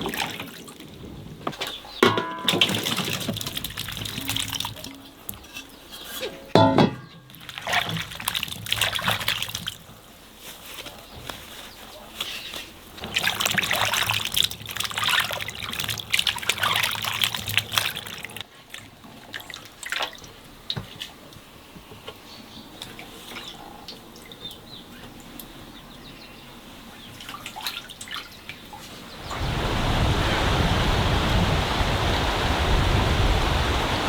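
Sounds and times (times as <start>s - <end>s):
water pouring and splashing: 0.0s - 1.1s, 2.3s - 6.5s, 7.3s - 10.0s, 13.0s - 20.4s, 27.2s - 34.0s
water trickling and dripping: 2.4s - 5.9s.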